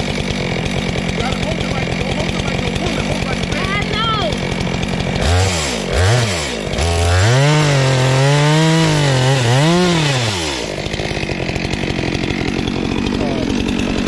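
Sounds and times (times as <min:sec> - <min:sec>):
chainsaw revving and idling: 0:00.0 - 0:14.0.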